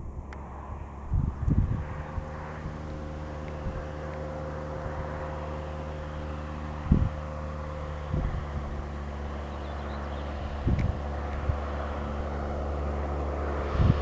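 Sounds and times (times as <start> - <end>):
light aircraft engine and propeller: 0.0 - 14.0
wind thumps on microphone: 1.1 - 2.8, 6.9 - 7.2, 10.6 - 11.7, 13.7 - 14.0.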